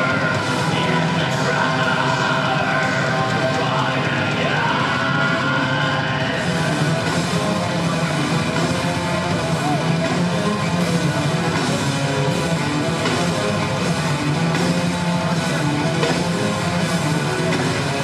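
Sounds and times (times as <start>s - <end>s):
heavy metal band playing: 0.0s - 18.0s.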